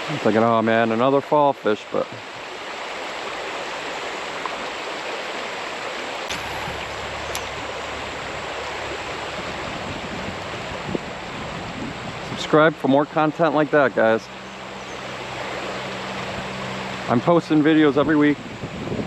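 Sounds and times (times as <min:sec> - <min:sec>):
creek water running over rocks: 0:00.0 - 0:19.0
low rumble: 0:06.3 - 0:12.3.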